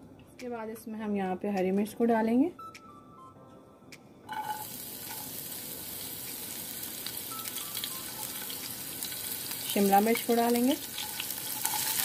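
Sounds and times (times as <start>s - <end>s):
chilies sizzling in hot oil: 4.3s - 12.0s
wooden spatula stirring: 10.8s - 12.0s.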